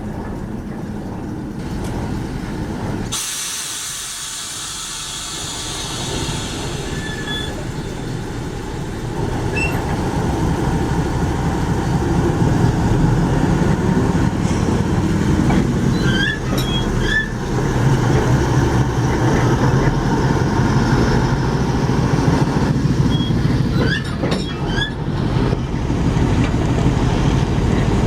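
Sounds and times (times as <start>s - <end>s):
train rumbling on track: 0.0s - 28.0s
train wheel squeals: 3.1s - 10.0s, 14.4s - 20.0s, 22.2s - 25.2s.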